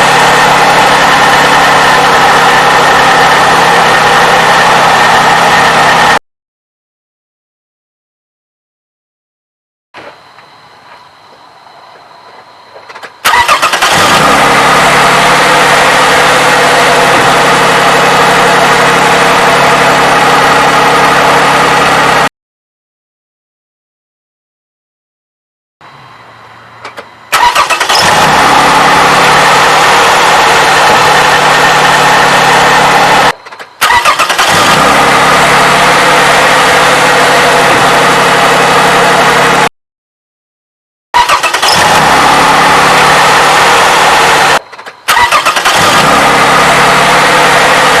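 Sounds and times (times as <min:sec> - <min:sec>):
car engine starting and idling: 0:00.0 - 0:06.2, 0:12.0 - 0:22.3, 0:25.9 - 0:39.7, 0:41.2 - 0:48.0.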